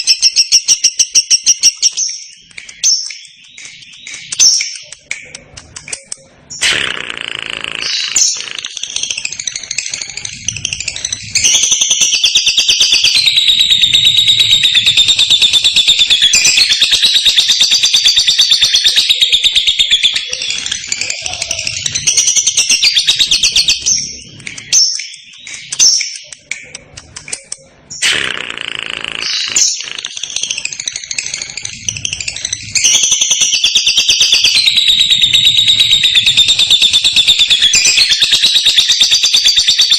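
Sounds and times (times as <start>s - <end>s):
lovebird chirps: 0.0s - 39.9s
lovebird rapid trill: 6.4s - 26.3s, 27.4s - 39.9s.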